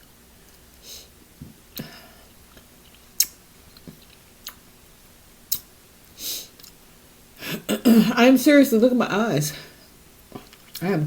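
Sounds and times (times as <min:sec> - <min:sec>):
chewing clicks and smacks: 0:02.5 - 0:04.6, 0:05.5 - 0:05.7.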